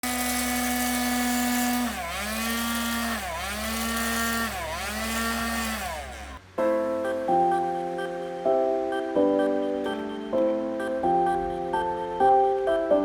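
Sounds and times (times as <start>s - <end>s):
small electric motor whining: 0.0s - 6.4s.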